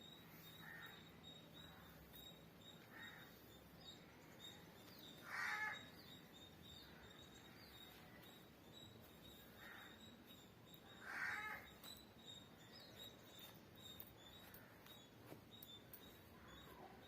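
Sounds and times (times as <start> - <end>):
faint high chirps: 0.0 - 17.0.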